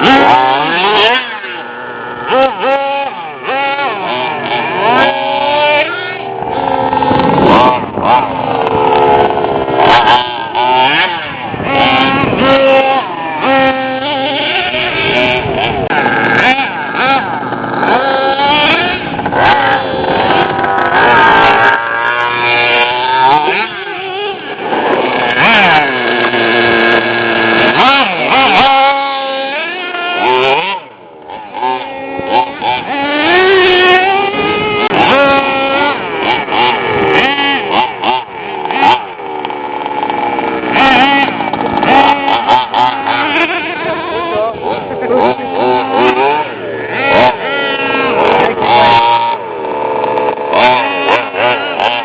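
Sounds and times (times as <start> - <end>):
small nitro engine revving: 0.0 - 52.0.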